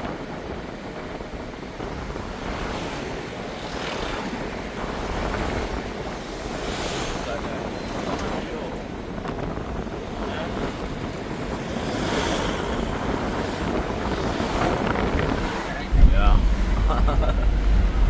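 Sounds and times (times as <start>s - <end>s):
vehicle road rush: 0.0s - 18.0s
wind buffeting microphone: 0.0s - 18.0s.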